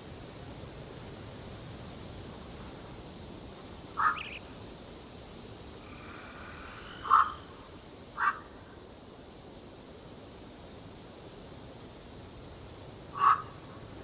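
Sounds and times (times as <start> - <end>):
steady background hiss: 0.0 - 14.0
faint high bird calls: 4.0 - 4.5, 6.0 - 7.6, 8.2 - 8.7, 13.2 - 13.6
loud bird calls: 4.0 - 4.5, 5.9 - 7.6, 8.2 - 8.6, 13.2 - 13.6.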